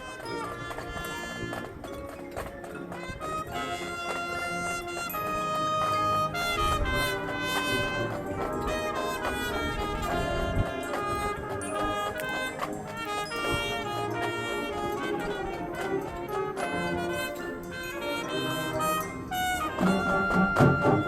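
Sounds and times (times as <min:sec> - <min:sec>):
jazzy marching band: 0:00.0 - 0:21.0.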